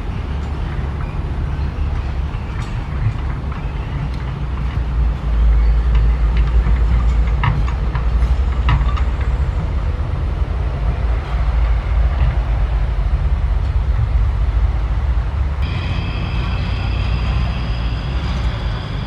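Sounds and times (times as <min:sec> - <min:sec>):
excavator diesel engine rumble: 0:00.0 - 0:19.0.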